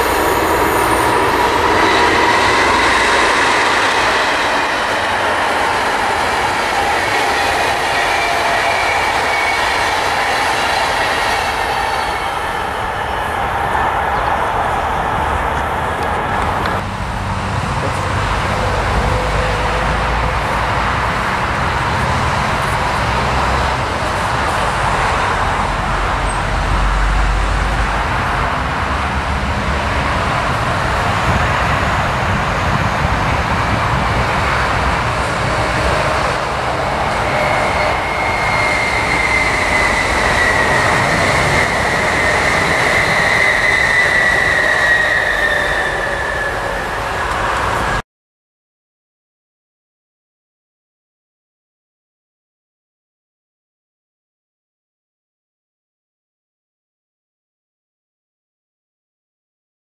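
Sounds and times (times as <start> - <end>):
high whine falling in pitch: 0.0 - 9.5
steady rushing noise: 0.0 - 48.0
train approaching: 0.0 - 48.0.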